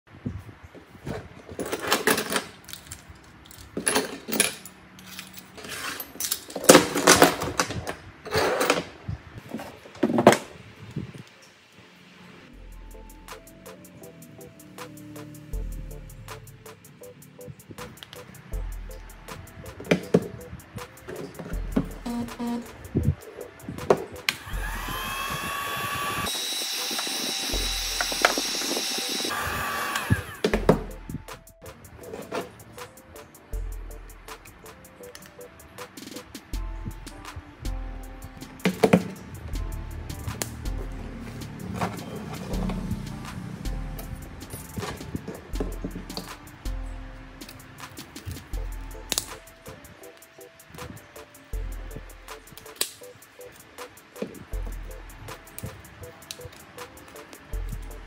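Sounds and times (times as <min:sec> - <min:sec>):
small tools clinking on wooden desk: 0:01.5 - 0:08.9
heat gun blowing air: 0:24.3 - 0:30.6.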